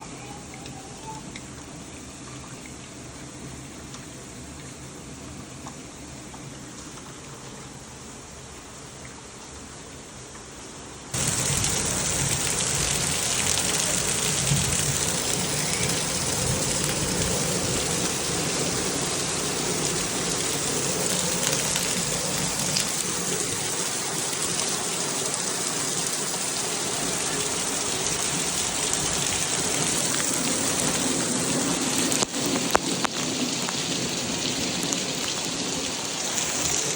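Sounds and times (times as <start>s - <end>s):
heavy rain hissing: 11.0s - 36.9s.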